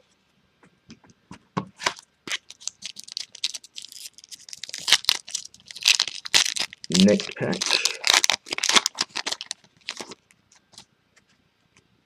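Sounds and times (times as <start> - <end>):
card pack wrapper crinkling: 1.8 - 10.8.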